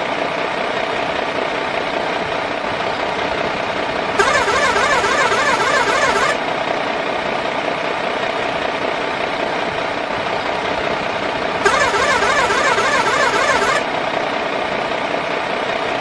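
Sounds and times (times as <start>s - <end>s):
toy truck motor whirring: 4.2s - 6.4s, 11.6s - 13.9s
warbling sound: 4.2s - 6.4s, 11.6s - 13.8s.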